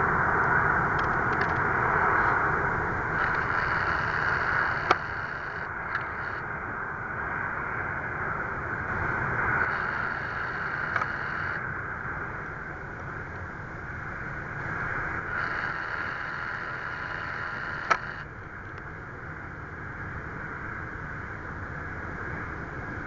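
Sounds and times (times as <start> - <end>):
jet engines roaring: 0.0 - 7.1, 8.0 - 18.3
sharp clicks: 1.0 - 1.6, 3.2 - 6.4, 9.6 - 11.6, 15.3 - 18.2.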